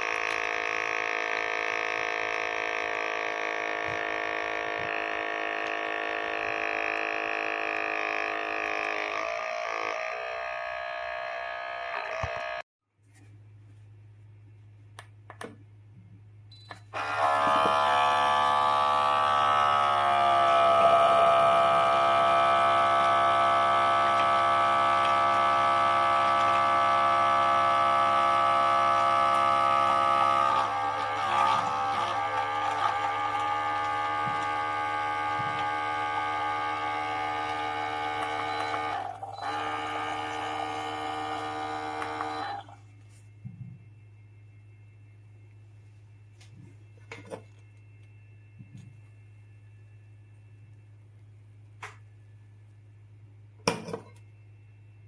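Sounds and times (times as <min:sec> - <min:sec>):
espresso maker pump humming: 0:00.0 - 0:12.6, 0:16.7 - 0:42.9.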